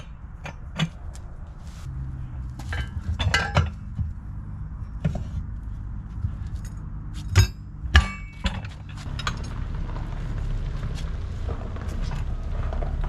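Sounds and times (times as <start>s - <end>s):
tire spoons clinking on wheel rim: 2.5s - 5.2s, 6.1s - 13.0s.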